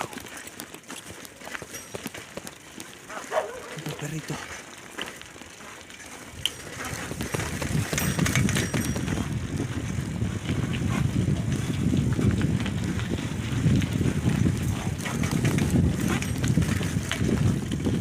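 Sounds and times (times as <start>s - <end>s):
bicycle ticks and rattles: 0.0s - 18.0s
wind buffeting microphone: 6.3s - 18.0s.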